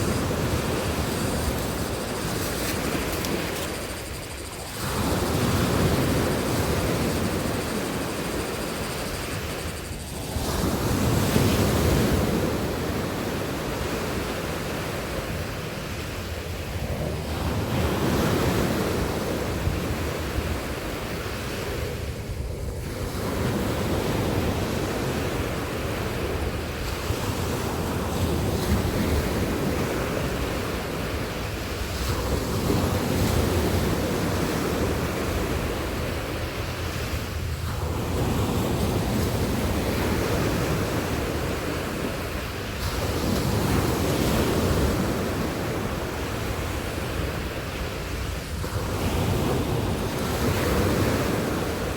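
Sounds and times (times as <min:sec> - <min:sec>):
sea waves breaking on beach: 0:00.0 - 0:51.9
wind rumbling on microphone: 0:00.0 - 0:51.9.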